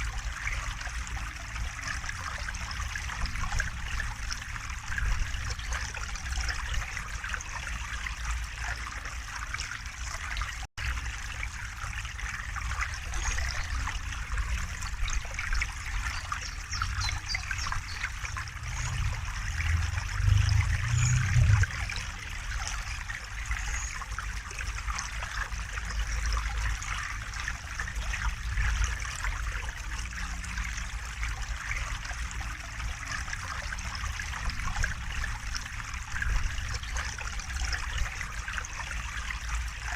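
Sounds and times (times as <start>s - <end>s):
river water babbling: 0.0s - 39.9s
low rumble: 18.2s - 22.6s.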